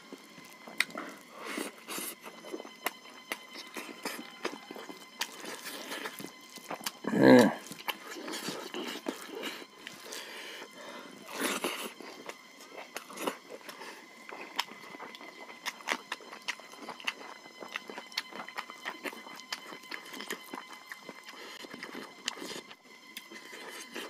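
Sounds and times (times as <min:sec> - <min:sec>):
wet chewing and smacks: 0:00.1 - 0:24.0
short throat vocal sound: 0:07.0 - 0:07.6.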